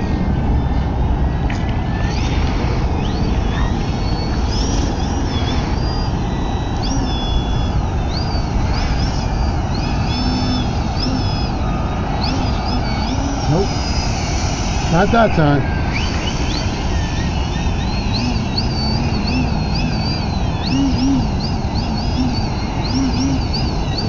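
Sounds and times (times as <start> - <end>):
electric motor and propeller whining: 0.0 - 24.0
wind noise on microphone: 0.0 - 24.0.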